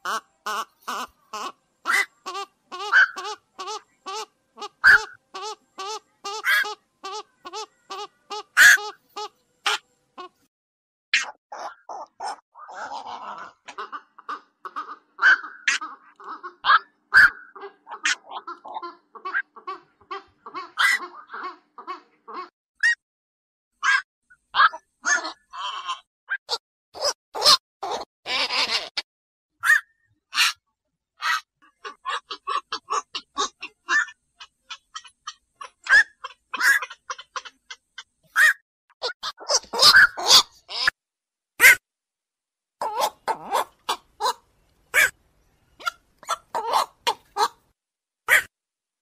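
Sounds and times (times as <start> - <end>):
harsh duck-like heron croaks: 11.2 - 22.5, 31.2 - 41.0, 45.0 - 45.2.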